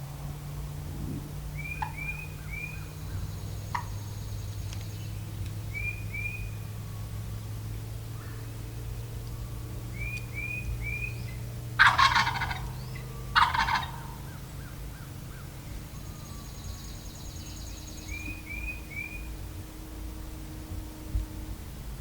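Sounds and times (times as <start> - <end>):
turkey gobbling: 1.0 - 3.0, 3.7 - 4.2, 11.8 - 14.7.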